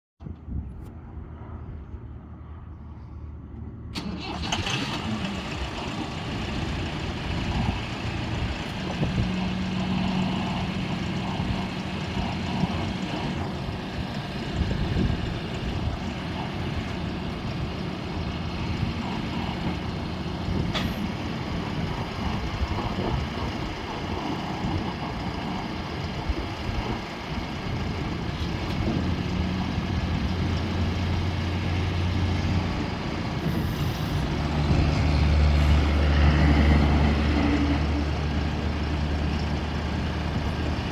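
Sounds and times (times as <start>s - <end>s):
tractor diesel engine running: 3.9s - 40.9s.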